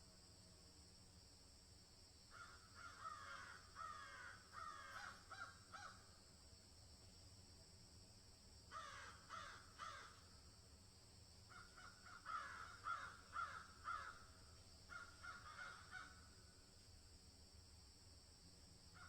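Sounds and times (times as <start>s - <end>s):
faint bird calls: 2.3s - 6.1s, 8.7s - 10.3s, 11.5s - 16.4s.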